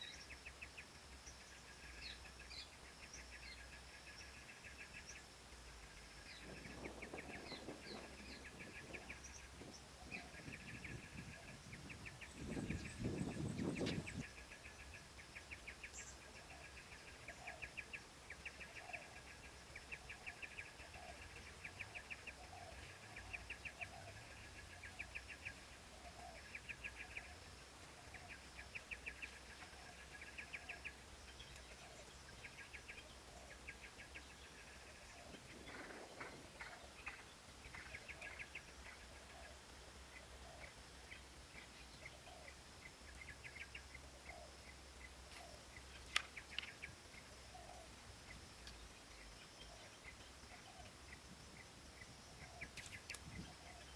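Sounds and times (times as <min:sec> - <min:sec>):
faint rapid chirping: 0:00.0 - 0:53.9.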